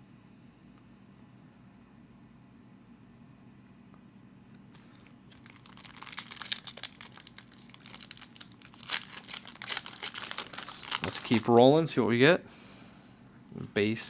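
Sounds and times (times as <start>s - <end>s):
wrapper tearing and crinkling: 4.8s - 11.7s.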